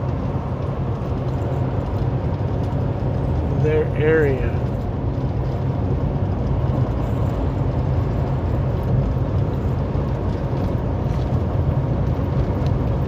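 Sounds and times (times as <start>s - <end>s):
road and tyre noise: 0.0s - 13.0s
truck engine drone: 0.0s - 13.0s.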